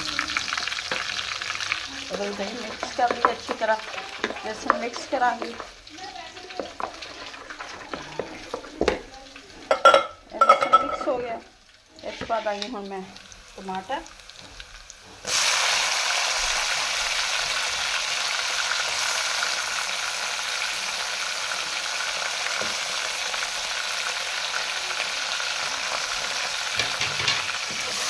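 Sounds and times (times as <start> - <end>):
vegetables sizzling in hot oil: 0.0 - 28.0
wooden spoon stirring: 0.4 - 11.4.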